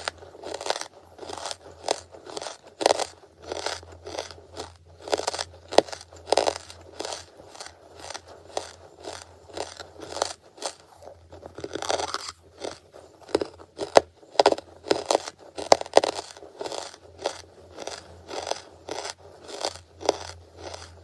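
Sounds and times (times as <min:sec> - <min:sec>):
crunchy chewing: 0:00.0 - 0:21.0.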